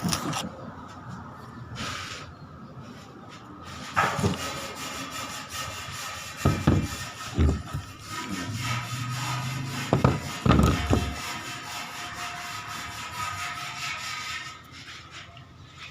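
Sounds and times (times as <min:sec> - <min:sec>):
handling knocks and rubbing: 0:03.8 - 0:04.7, 0:06.2 - 0:11.4.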